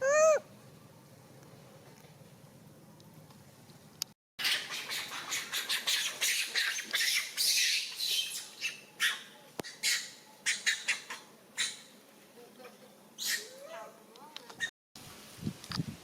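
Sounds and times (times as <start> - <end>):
monkey screeching: 0.0 - 0.4, 4.4 - 11.8, 13.2 - 13.9.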